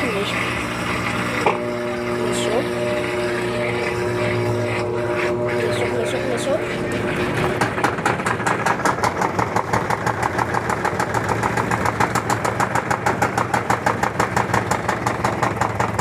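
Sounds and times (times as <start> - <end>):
low motor hum: 0.0 - 16.0
washing machine knocking: 0.0 - 16.0.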